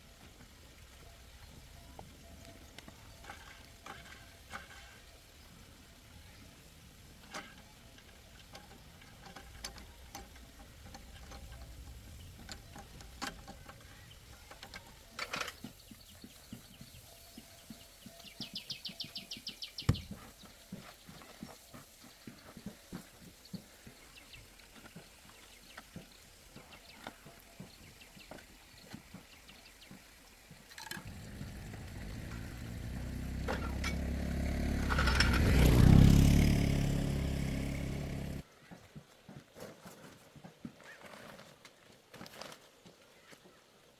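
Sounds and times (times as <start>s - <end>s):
ratchet-like rattle: 7.0s - 16.0s, 30.7s - 38.4s
engine running: 31.0s - 38.4s.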